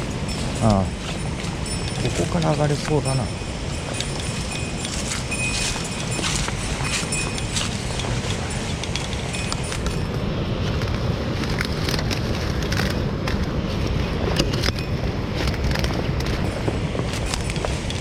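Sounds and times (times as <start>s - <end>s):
footsteps through twigs and brush: 0.0s - 18.0s.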